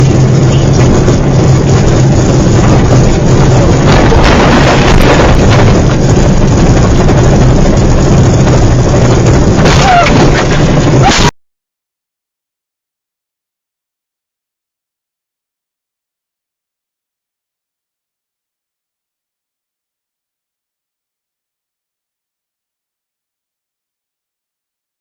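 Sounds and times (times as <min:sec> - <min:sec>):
wind buffeting microphone: 0:00.0 - 0:11.1
vehicle engine roaring: 0:00.0 - 0:11.4.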